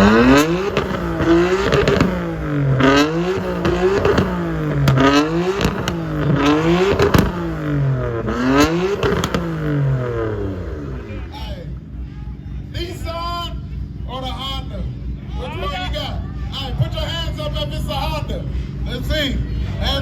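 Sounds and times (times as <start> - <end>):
exhaust pops and cracks: 0.0 - 9.8
car engine revving: 0.0 - 11.5.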